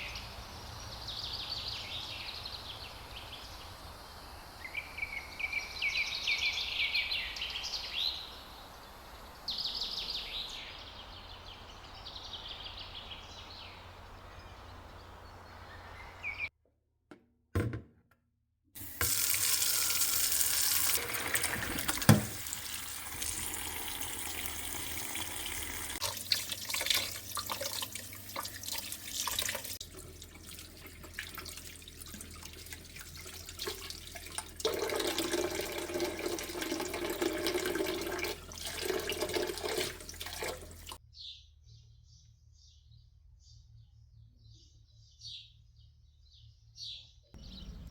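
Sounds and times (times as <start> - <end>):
bird chirping: 0.0 - 16.5, 41.1 - 47.9
water running from a tap: 18.8 - 41.0.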